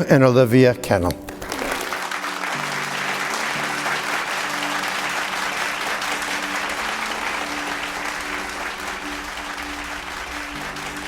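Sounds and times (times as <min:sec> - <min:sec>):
soft music with held notes: 0:00.0 - 0:11.0
guests applauding: 0:01.1 - 0:11.0.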